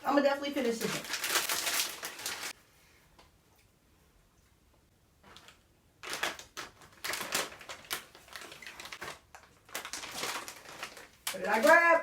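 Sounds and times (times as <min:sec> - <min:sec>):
foil snack bags crinkling: 0:00.0 - 0:02.6, 0:05.3 - 0:12.0.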